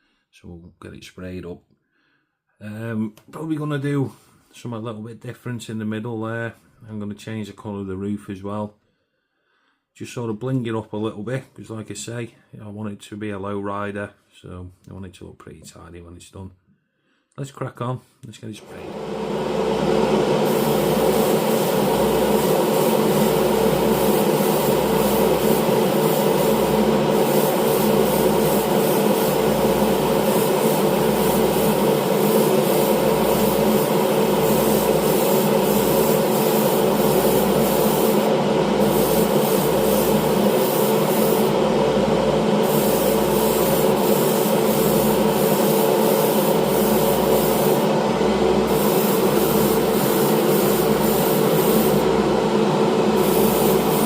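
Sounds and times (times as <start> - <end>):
extraction fan hum: 18.6 - 54.0
spray gun air hiss: 18.7 - 54.0.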